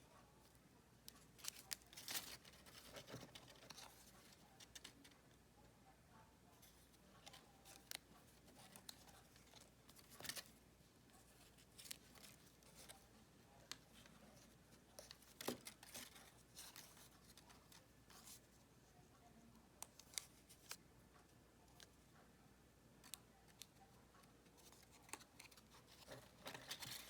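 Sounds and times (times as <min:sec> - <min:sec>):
paper rustling: 0:01.1 - 0:05.2, 0:06.6 - 0:18.5, 0:24.6 - 0:27.0.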